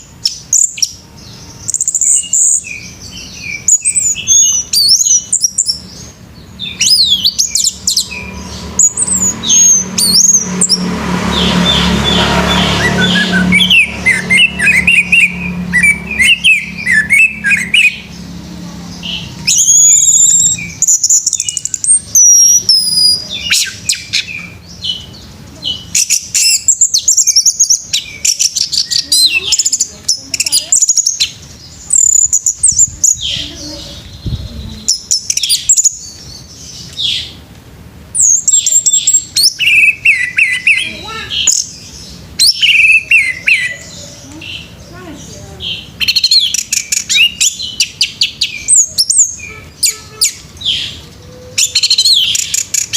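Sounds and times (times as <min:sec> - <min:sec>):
thrush singing: 0:06.5 - 0:27.0.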